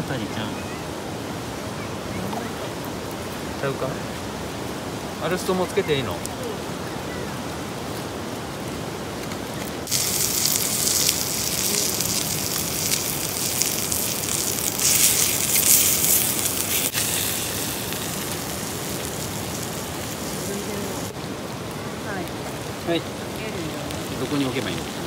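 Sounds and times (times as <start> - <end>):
meat sizzling over campfire: 2.8 - 25.0
loud hiss: 9.8 - 21.2.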